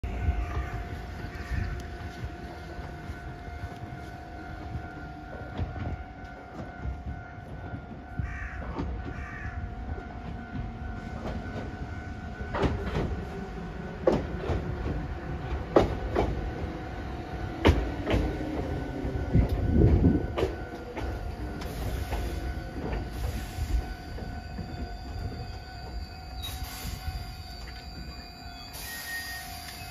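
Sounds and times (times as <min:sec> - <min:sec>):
train brakes rumbling and squealing: 0:00.0 - 0:29.9
train wheels knocking over rail joints: 0:14.0 - 0:16.7, 0:17.4 - 0:26.0
steady high tone: 0:16.6 - 0:29.9.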